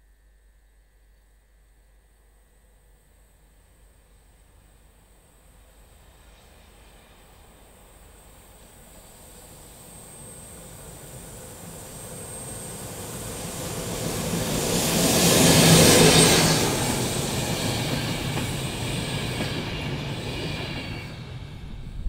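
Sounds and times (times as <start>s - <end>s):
electric locomotive passing: 5.3s - 22.0s
train wheels rolling on rails: 10.6s - 22.0s.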